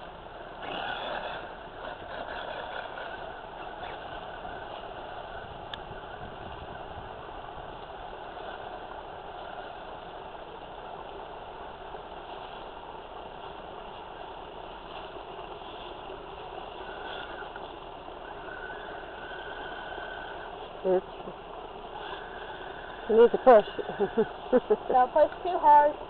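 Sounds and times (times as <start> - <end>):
faint high whine: 0.0 - 26.0
toy truck motor whirring: 0.6 - 6.8, 16.6 - 21.0, 21.9 - 25.3.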